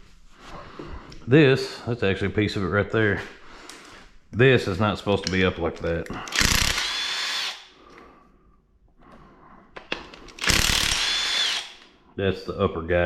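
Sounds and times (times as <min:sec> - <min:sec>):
power drill whining: 0:06.2 - 0:07.7, 0:10.3 - 0:11.9.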